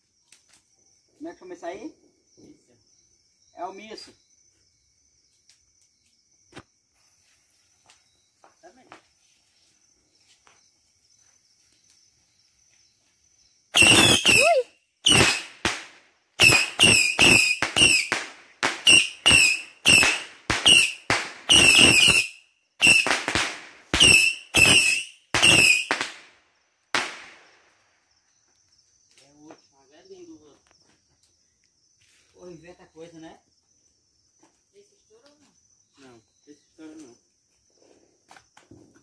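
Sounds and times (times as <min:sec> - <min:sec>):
firework whistle: 0:13.7 - 0:26.2
firework bangs with crackling: 0:13.8 - 0:27.7.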